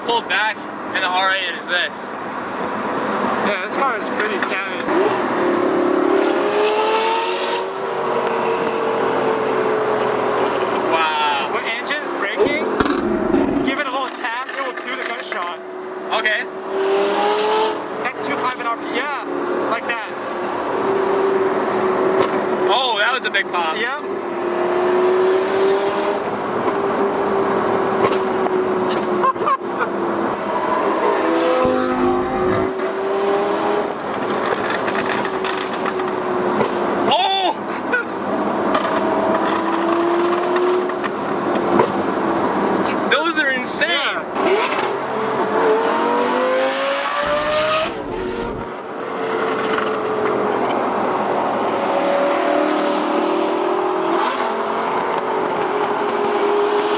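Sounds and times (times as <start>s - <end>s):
sports car engine accelerating: 4.1s - 11.2s, 12.2s - 22.7s, 23.4s - 37.2s, 37.8s - 43.2s, 44.3s - 56.9s
exhaust pops: 12.4s - 15.5s, 34.0s - 36.9s.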